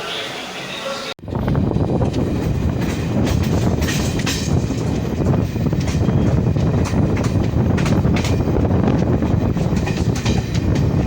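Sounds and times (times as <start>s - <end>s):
train rumbling: 0.0s - 11.0s
wheels clattering over rails: 1.4s - 11.0s.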